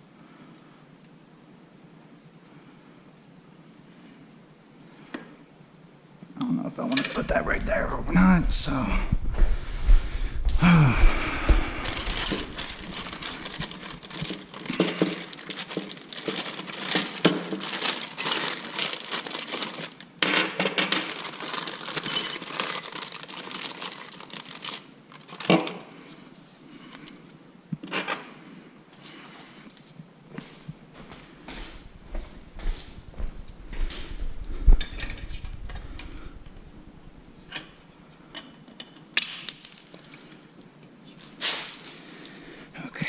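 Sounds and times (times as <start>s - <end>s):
metal tools clinking: 11.8s - 26.1s, 37.4s - 40.6s.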